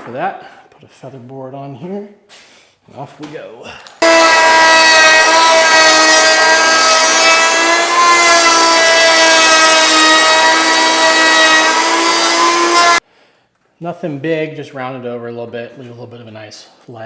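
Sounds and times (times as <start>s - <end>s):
wood router whining: 4.0s - 13.0s.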